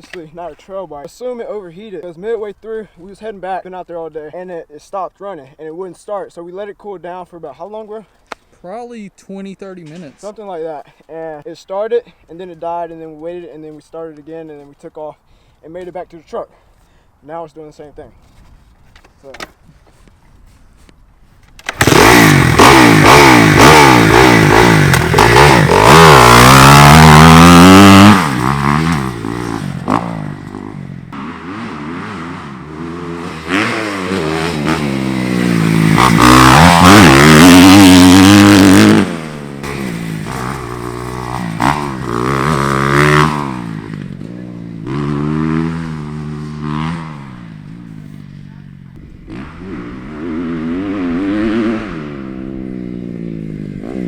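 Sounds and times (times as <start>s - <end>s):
motorcycle engine revving: 21.6s - 54.0s.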